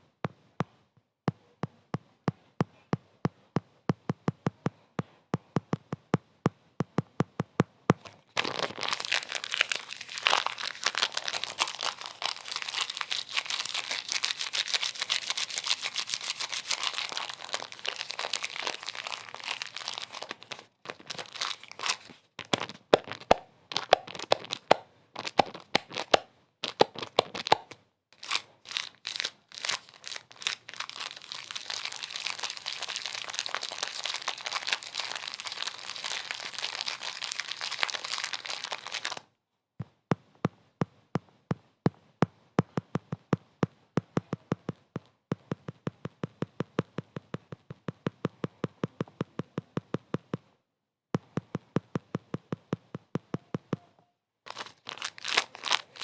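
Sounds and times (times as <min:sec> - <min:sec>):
crinkling and crackling: 0:08.0 - 0:39.3, 0:54.5 - 0:56.0.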